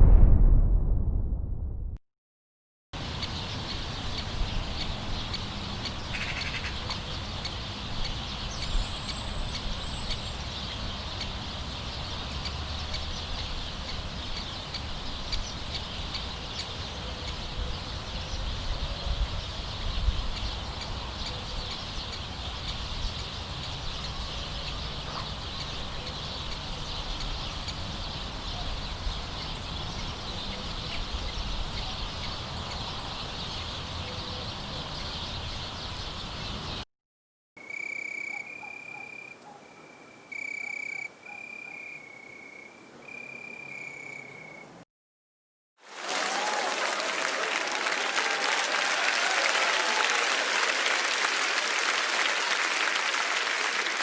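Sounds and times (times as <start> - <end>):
birds calling: 3.0 - 36.8.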